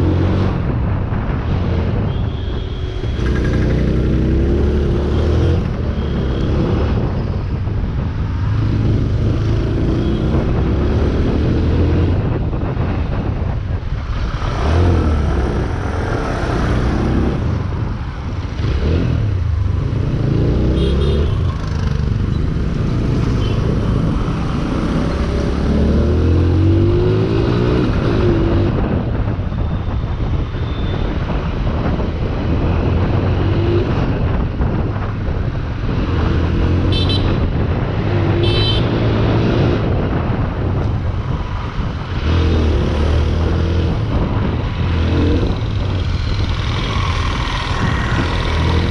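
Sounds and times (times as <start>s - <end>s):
wind noise on microphone: 0.0s - 48.9s
motorcycle engine revving: 3.0s - 7.0s, 41.5s - 48.9s
motorcycle horn beeps: 36.9s - 37.4s.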